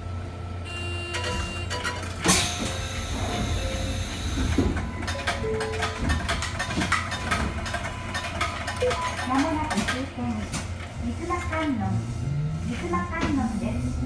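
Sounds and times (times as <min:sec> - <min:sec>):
train low hum: 0:00.0 - 0:14.0
rattling and clicking: 0:04.4 - 0:11.7.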